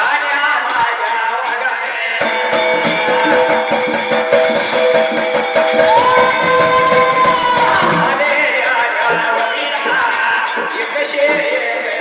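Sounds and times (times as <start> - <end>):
rapid jingling percussion: 0.0 - 12.0
person singing: 2.1 - 3.7, 5.8 - 12.0.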